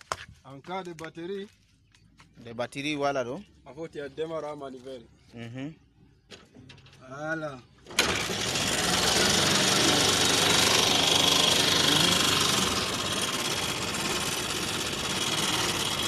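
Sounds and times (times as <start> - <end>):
car engine starting and running: 7.8 - 16.0.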